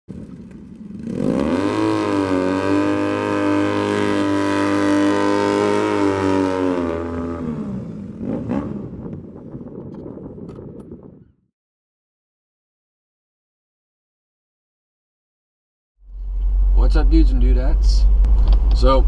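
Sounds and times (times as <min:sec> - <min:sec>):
vehicle engine revving: 0:00.8 - 0:09.5
rough unpitched rumble: 0:05.1 - 0:11.4.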